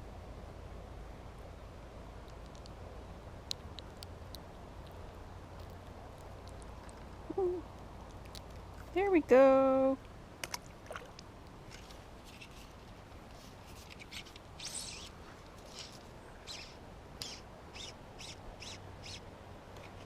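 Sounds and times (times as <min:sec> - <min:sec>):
faint outdoor background noise: 0:00.0 - 0:20.0
small bird chirping: 0:13.8 - 0:19.2.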